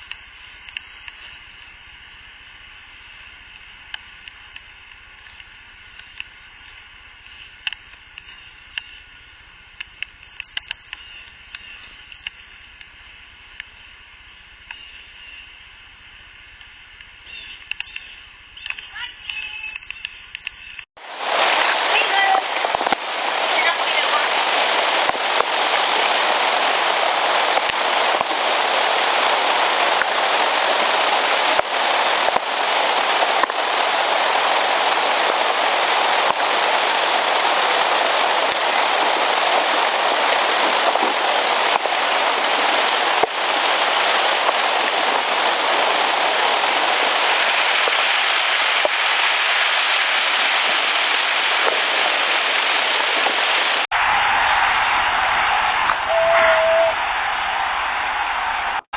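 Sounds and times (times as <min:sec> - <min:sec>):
faint clicks: 0:00.0 - 0:01.4, 0:03.5 - 0:09.0, 0:09.8 - 0:12.9, 0:16.6 - 0:20.9
loud rain-like hiss: 0:00.0 - 0:17.8, 0:21.0 - 0:58.9.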